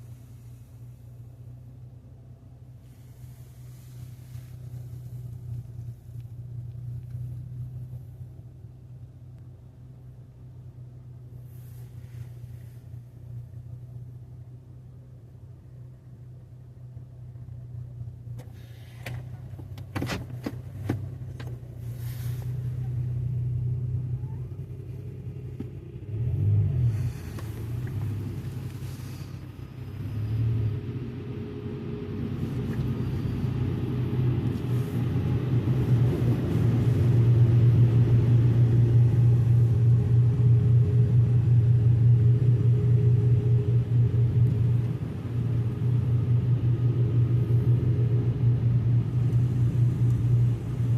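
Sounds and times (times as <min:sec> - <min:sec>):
car wash rumbling rush: 0:00.0 - 0:09.3, 0:17.1 - 0:50.9
car wash machine humming: 0:20.7 - 0:50.9.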